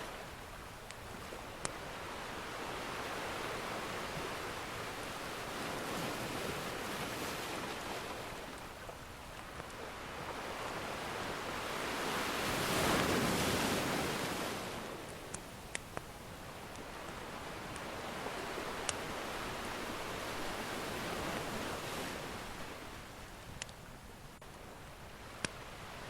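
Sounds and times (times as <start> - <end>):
ocean surf washing in: 0.0 - 15.7, 16.3 - 23.4
wood fire crackling: 0.3 - 1.8, 8.4 - 10.9, 14.9 - 21.5.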